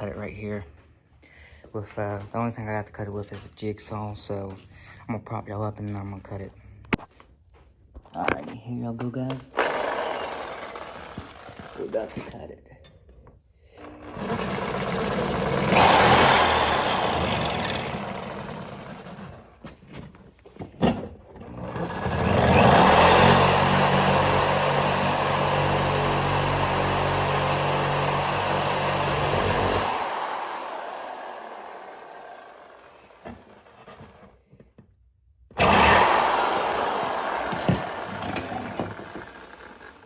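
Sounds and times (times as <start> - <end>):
jigsaw cutting metal pipe: 9.5 - 12.4, 13.7 - 19.6, 21.4 - 34.3, 35.6 - 40.0.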